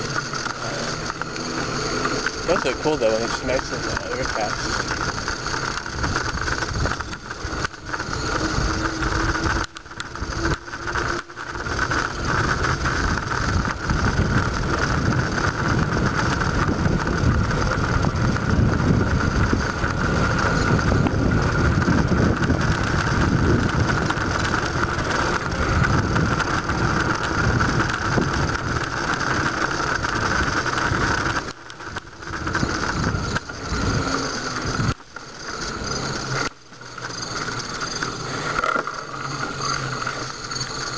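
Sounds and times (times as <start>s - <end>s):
bicycle tyres rolling on road: 0.0s - 40.9s
steady high whirr: 0.0s - 40.9s
wind buffeting microphone: 5.0s - 10.9s, 11.7s - 35.0s.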